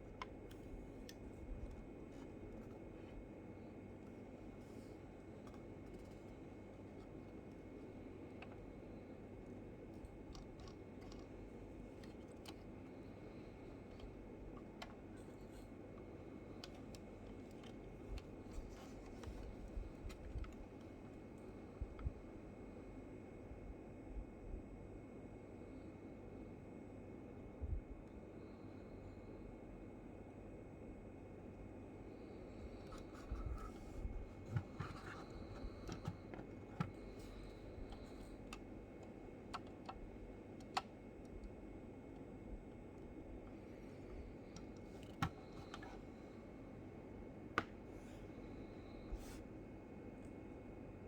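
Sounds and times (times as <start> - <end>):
clicks and taps handling model car: 4.1 - 8.8, 9.9 - 21.2, 32.8 - 41.6, 43.5 - 46.1, 47.5 - 48.2.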